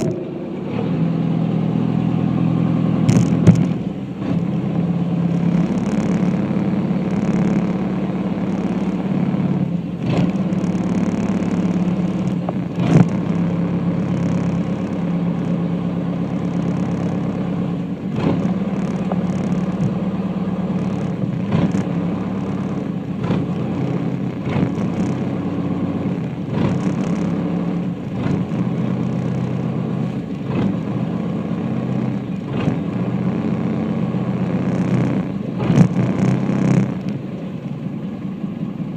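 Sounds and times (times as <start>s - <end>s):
ferry engine humming: 0.0s - 38.9s
knocks and clatters: 3.0s - 3.8s.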